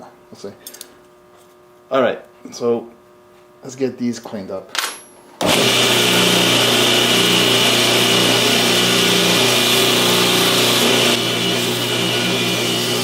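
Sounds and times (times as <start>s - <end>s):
belt grinder grinding metal: 5.4s - 13.0s.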